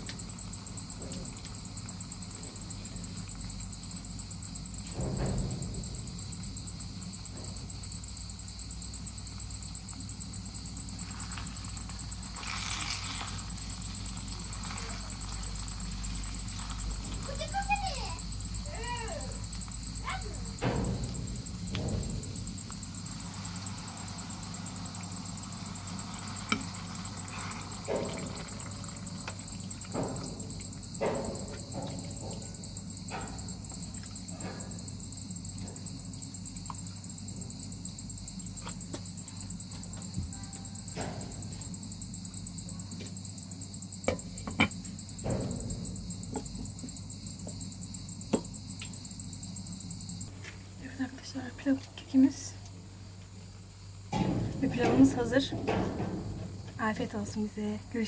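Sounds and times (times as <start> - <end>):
crickets chirring: 0.0 - 58.0
scattered knocks and clinks: 13.4 - 37.6, 54.1 - 57.4.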